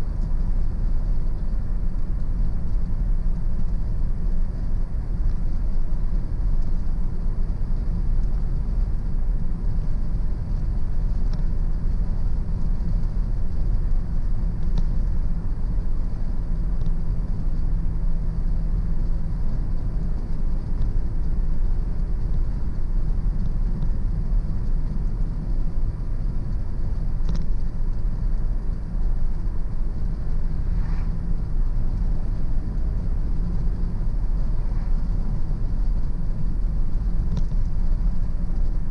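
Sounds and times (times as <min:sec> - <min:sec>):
car tyres and engine rumble: 0:00.0 - 0:38.9
faint ticks: 0:00.1 - 0:06.8, 0:07.4 - 0:38.9.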